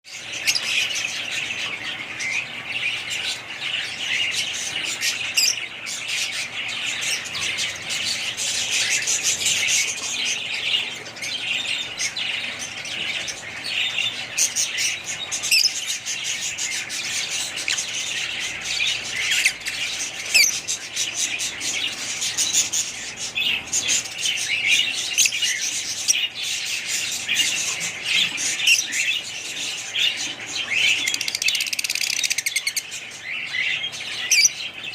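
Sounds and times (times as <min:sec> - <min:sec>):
flock of small birds chirping: 0:00.0 - 0:34.9.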